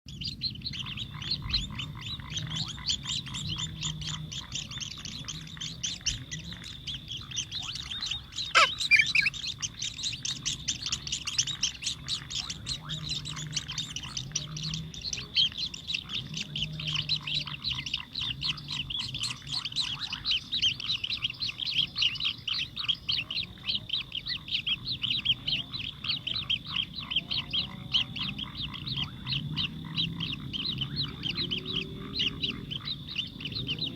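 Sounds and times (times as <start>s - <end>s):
sparrows chirping: 0.1s - 33.9s
loud downward sweeping bird call: 8.4s - 9.4s.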